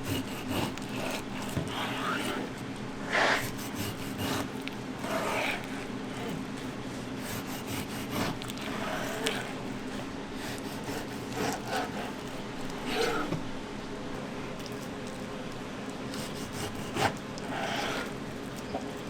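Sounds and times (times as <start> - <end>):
rubbing and scraping strokes: 3.1 - 5.8.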